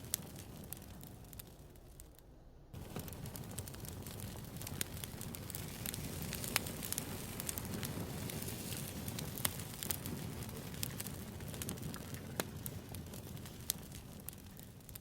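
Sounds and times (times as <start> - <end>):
campfire pops and snaps: 0.0 - 2.2, 2.8 - 15.0
low rumble of burning wood: 0.0 - 15.0.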